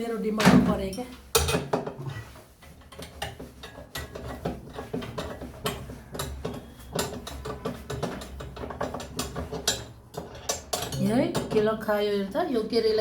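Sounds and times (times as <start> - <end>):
metal tools clicking and tapping: 0.9 - 1.9, 2.8 - 11.8.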